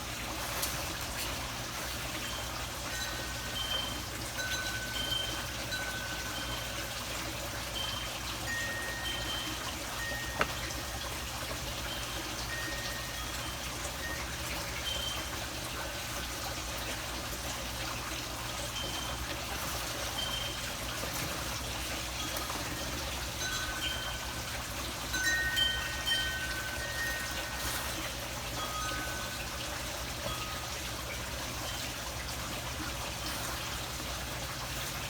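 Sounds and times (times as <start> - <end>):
water trickling: 0.0 - 35.0
short high ringing tones: 18.7 - 31.0.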